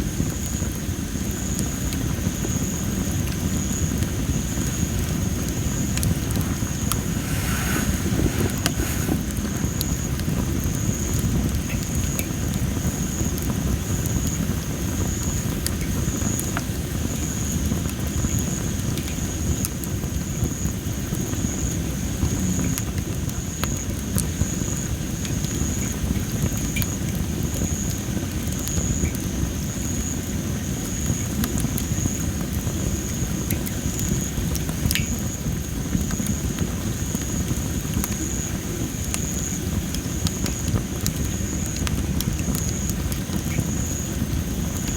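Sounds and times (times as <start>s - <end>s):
firewood crackling and popping: 3.1s - 14.3s, 30.7s - 44.9s.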